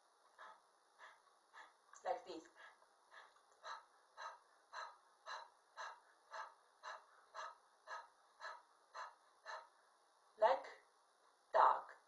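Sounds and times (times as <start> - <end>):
person panting quickly: 0.0 - 1.8, 2.5 - 9.8.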